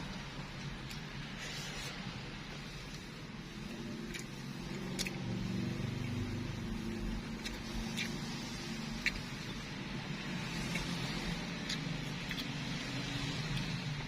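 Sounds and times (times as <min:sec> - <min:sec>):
low engine-like hum: 0:00.0 - 0:14.0
sharp eating clicks: 0:03.8 - 0:14.0.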